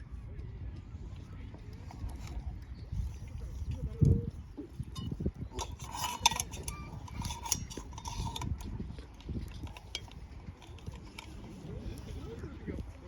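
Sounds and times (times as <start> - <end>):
metal camp gear clinking: 4.8 - 12.2.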